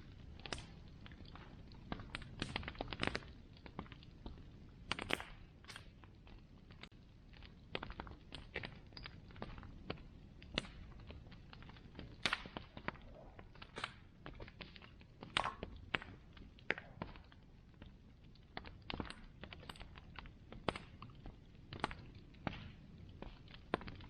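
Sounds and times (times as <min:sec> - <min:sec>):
bonfire crackling: 0:00.0 - 0:24.0.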